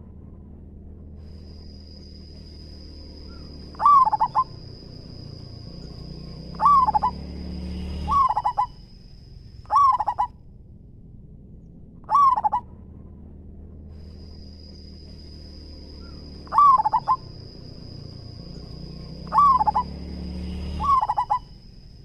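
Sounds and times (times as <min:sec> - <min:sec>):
dove cooing: 0:03.3 - 0:05.3, 0:06.5 - 0:07.2, 0:08.0 - 0:08.8, 0:09.7 - 0:10.3, 0:12.1 - 0:12.6, 0:16.0 - 0:17.4, 0:19.2 - 0:20.0, 0:20.8 - 0:21.5.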